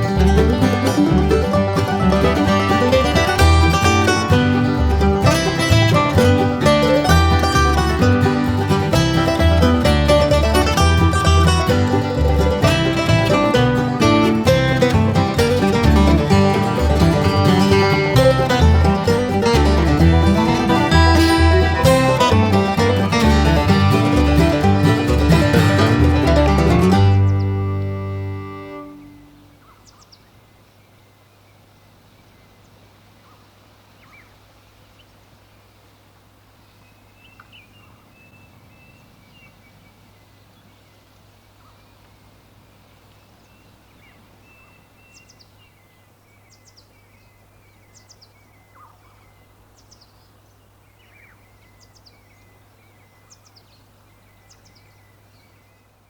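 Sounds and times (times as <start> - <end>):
bird chirps and trills: 27.1 - 30.9.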